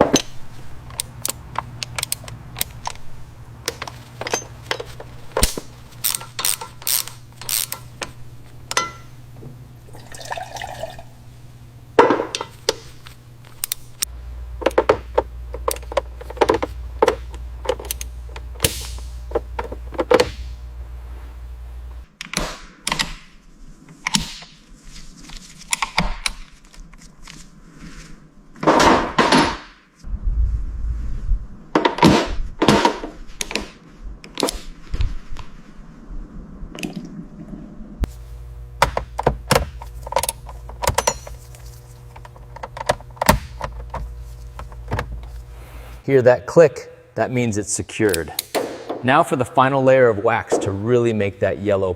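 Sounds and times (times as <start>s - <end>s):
tools clicking and rattling: 0.0s - 9.2s, 12.0s - 20.3s, 38.9s - 45.3s
low steady hum: 0.0s - 22.1s, 35.6s - 51.9s.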